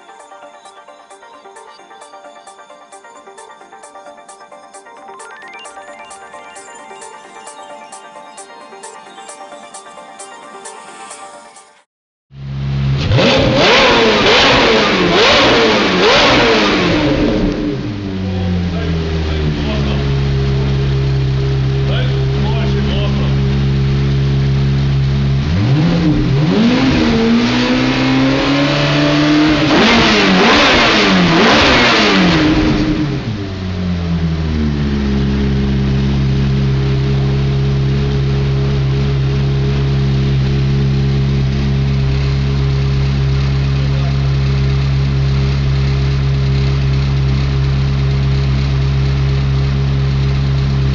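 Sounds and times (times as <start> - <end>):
sports car engine revving: 12.4 - 50.9.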